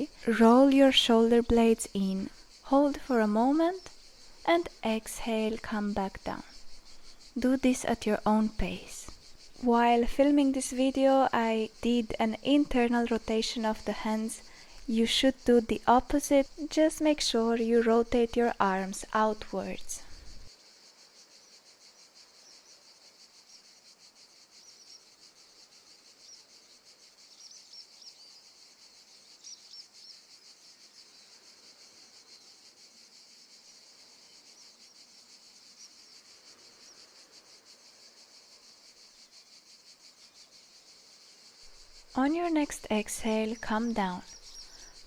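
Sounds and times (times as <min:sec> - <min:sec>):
crickets chorus: 0:00.0 - 0:45.0
faint bird chirps: 0:21.4 - 0:45.0.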